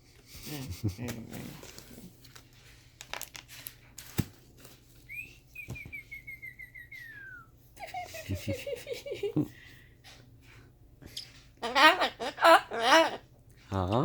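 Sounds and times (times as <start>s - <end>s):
cockatoo whistling: 5.1s - 7.6s.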